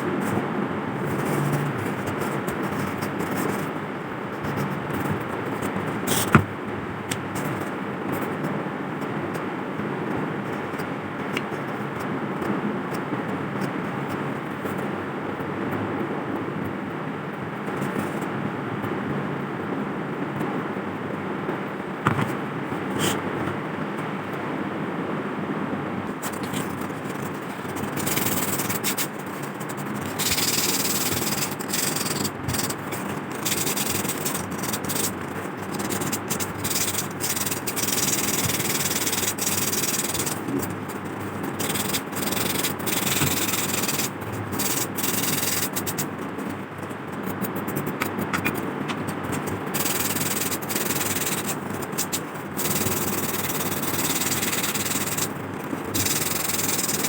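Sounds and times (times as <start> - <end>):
sandpaper rubbing rusty metal: 26.3 - 46.2, 49.4 - 57.0.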